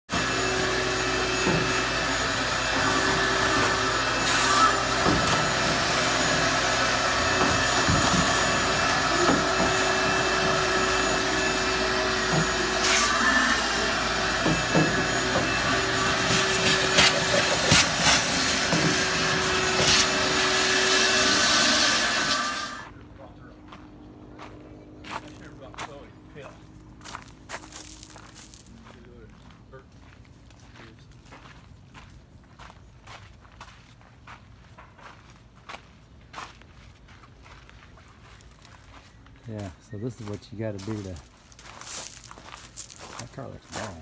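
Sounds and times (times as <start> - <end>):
small motor running: 0.1 - 22.9.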